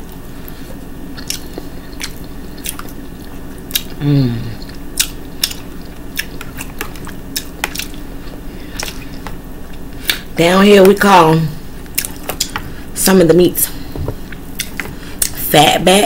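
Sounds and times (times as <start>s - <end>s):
steady low hum: 0.0s - 16.0s
open-mouthed chewing and lip smacking: 0.4s - 10.2s, 11.8s - 12.6s, 14.2s - 15.4s
person humming mmm: 3.8s - 5.1s.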